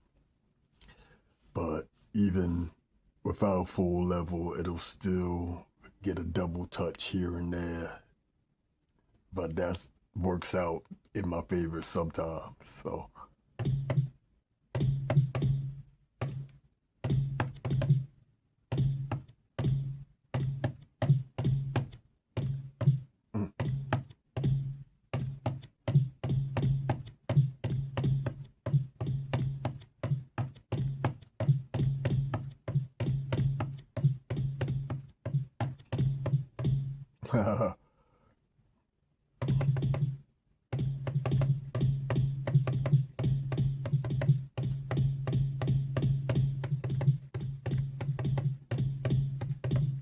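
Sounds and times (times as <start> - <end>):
finger-drummed beat on pad controller: 13.6 - 14.2, 14.8 - 18.1, 18.7 - 37.1, 39.4 - 50.0.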